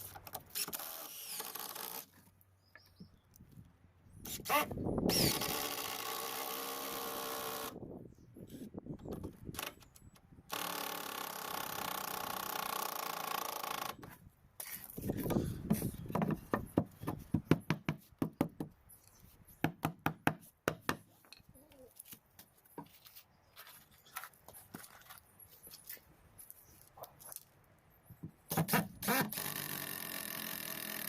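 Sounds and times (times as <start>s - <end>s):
cordless drill driving screws: 0.5s - 2.1s, 4.3s - 7.8s, 10.5s - 14.0s, 28.7s - 31.0s.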